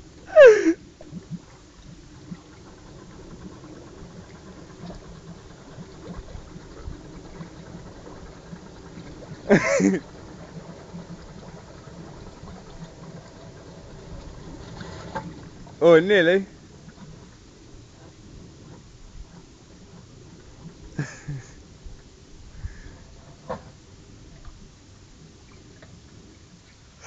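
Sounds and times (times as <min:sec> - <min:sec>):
vehicle wading through water: 0:00.0 - 0:23.5
person exclaiming: 0:00.3 - 0:00.8.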